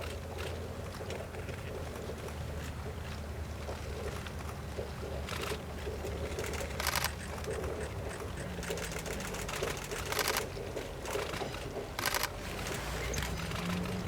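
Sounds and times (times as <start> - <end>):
diesel railcar engine hum: 0.0 - 14.0
mechanical rattle: 6.3 - 14.0
sharp clatters: 6.3 - 14.0.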